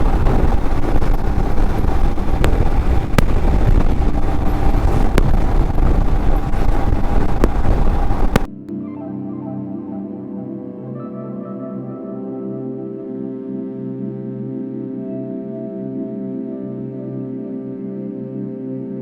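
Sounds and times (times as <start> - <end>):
motorcycle engine rumble: 0.0 - 8.5
sharp clicks: 0.0 - 8.5
wind rushing over microphone: 0.0 - 8.5
soft ambient music: 0.0 - 19.0.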